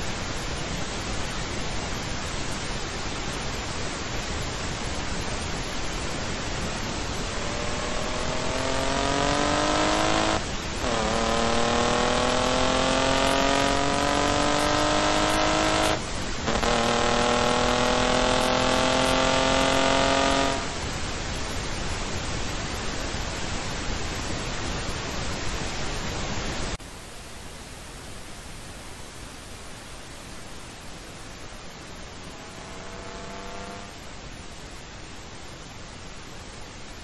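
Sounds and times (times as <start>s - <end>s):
wind and road noise: 0.0s - 37.0s
car engine accelerating: 6.4s - 21.0s, 32.0s - 34.0s.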